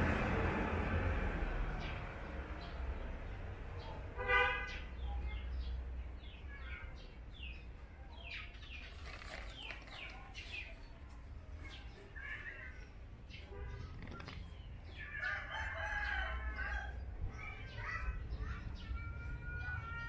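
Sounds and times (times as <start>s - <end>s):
small birds chirping: 4.6s - 19.8s.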